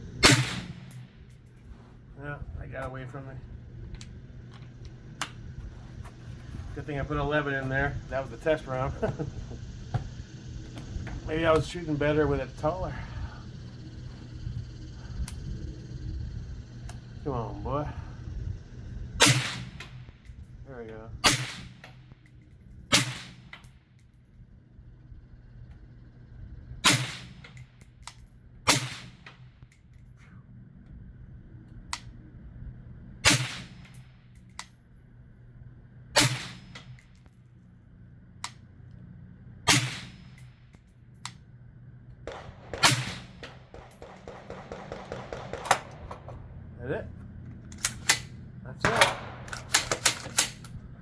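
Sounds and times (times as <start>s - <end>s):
suppressed rifle shots: 0.2s - 1.0s, 19.2s - 20.0s, 21.2s - 22.0s, 22.9s - 23.5s, 26.8s - 27.5s, 28.7s - 29.4s, 33.2s - 34.0s, 36.2s - 37.1s, 39.7s - 40.5s, 42.2s - 46.6s, 47.8s - 50.7s.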